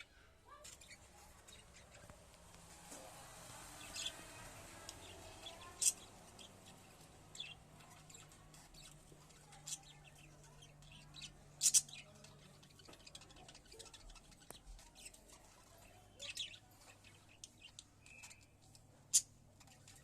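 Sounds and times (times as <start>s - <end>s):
faint ticks and scratches: 4.2s - 20.0s.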